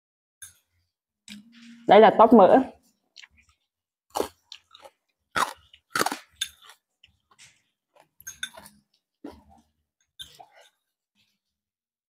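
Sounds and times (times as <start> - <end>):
chewing crispy food: 3.1 - 9.8.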